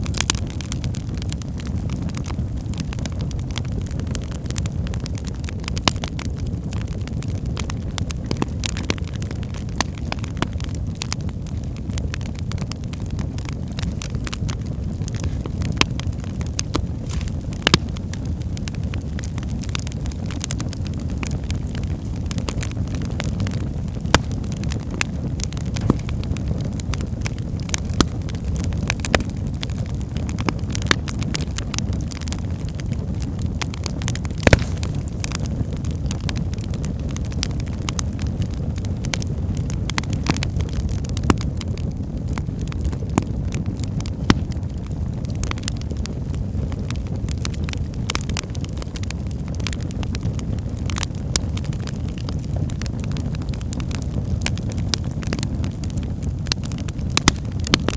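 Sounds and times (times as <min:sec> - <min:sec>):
fire roaring in fireplace: 0:00.0 - 0:57.9
logs crackling and popping: 0:00.0 - 0:57.9.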